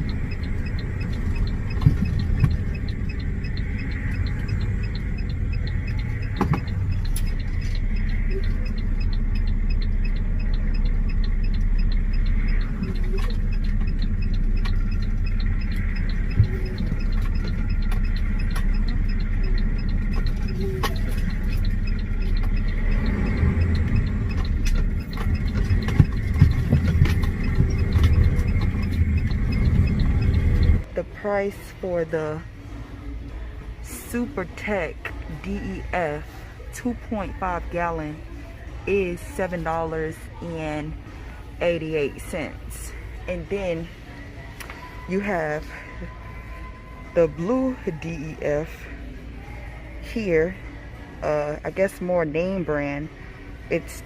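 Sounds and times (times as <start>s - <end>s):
fast regular ticking: 0.0s - 31.8s
diesel engine rumble: 0.0s - 54.0s.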